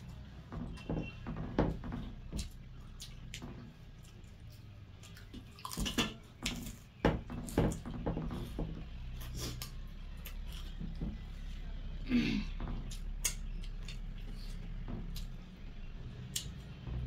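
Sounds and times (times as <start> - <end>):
wet chewing: 2.3 - 7.8, 8.4 - 11.4.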